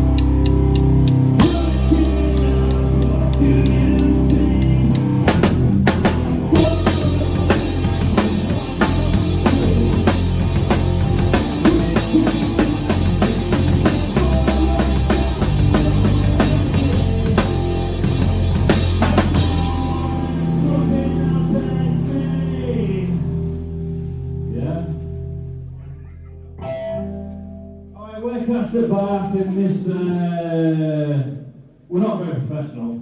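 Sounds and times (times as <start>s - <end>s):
drum kit beat: 0.0s - 20.5s
bass and guitar: 0.0s - 30.1s.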